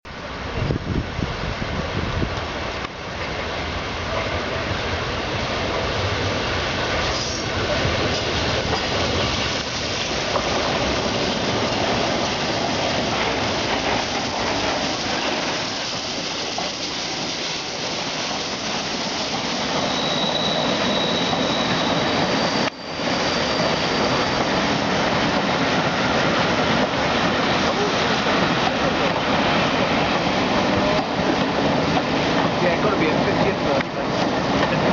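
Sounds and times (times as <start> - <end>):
train wheels rumbling on rail: 0.1 - 34.9
high wheel squeal: 14.8 - 25.2.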